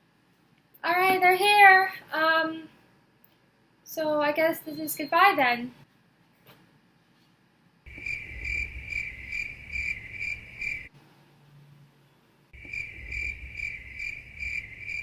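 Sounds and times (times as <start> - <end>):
crickets chirping: 7.9 - 10.9, 12.6 - 15.0.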